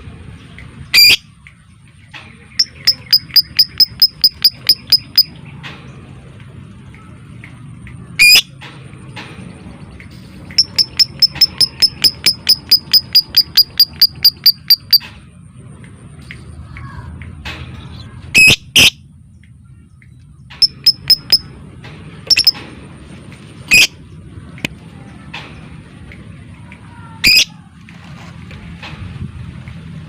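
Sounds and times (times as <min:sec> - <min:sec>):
lovebird ticking chirps: 0:02.6 - 0:05.3, 0:10.5 - 0:15.0, 0:20.6 - 0:21.5, 0:22.3 - 0:22.6.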